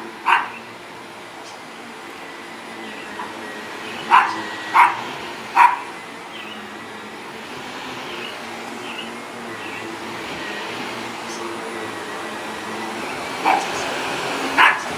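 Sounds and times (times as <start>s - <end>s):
vacuum cleaner humming: 0.0s - 14.9s
dog barking: 0.2s - 0.6s, 4.0s - 5.9s, 13.4s - 13.8s, 14.4s - 14.9s.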